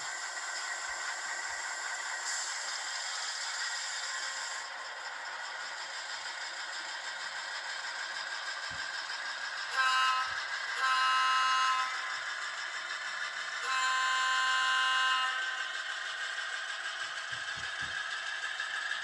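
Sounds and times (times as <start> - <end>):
model locomotive air horn: 0.0 - 4.8, 9.4 - 16.5
model locomotive running: 0.0 - 19.0.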